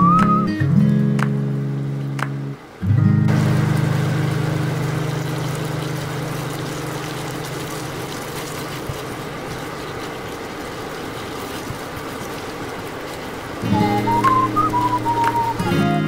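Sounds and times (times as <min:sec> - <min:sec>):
vegetables sizzling in oil: 0:03.3 - 0:16.0
background music note: 0:13.6 - 0:16.0.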